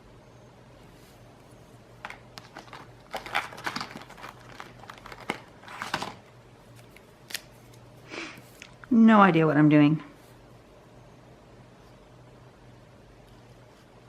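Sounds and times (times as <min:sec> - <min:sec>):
paper crinkling: 0:02.1 - 0:07.8.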